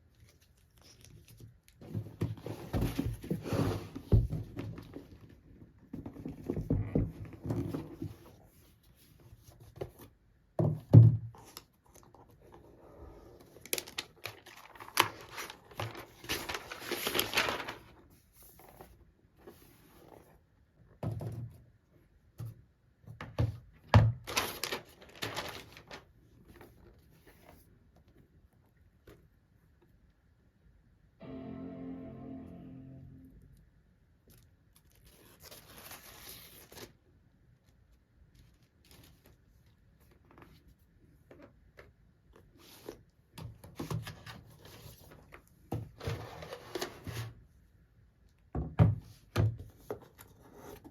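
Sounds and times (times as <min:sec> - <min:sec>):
paper and cardboard rustling: 0:11.4 - 0:20.4, 0:24.0 - 0:28.2.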